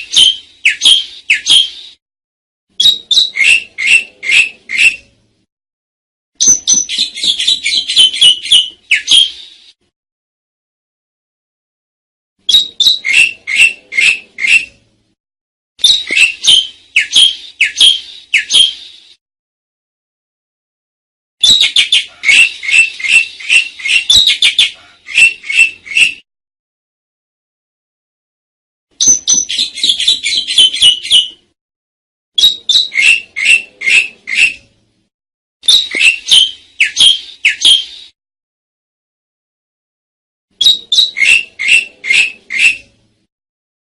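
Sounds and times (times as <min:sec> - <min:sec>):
starling singing: 0:00.0 - 0:02.0, 0:02.8 - 0:05.0, 0:06.4 - 0:09.5, 0:12.5 - 0:14.8, 0:15.8 - 0:18.9, 0:21.4 - 0:26.2, 0:29.0 - 0:31.4, 0:32.4 - 0:34.7, 0:35.6 - 0:38.1, 0:40.6 - 0:42.9.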